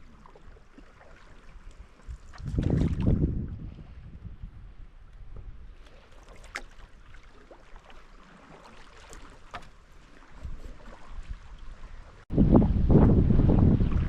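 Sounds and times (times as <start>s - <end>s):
paddle splashing in water: 0.0s - 3.9s, 5.2s - 12.3s
wind rumble on microphone: 1.5s - 5.9s, 10.3s - 14.0s.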